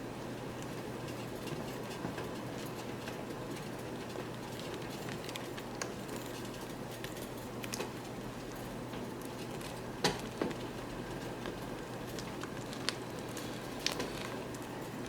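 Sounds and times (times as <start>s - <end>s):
soup simmering and bubbling: 9.2s - 15.0s.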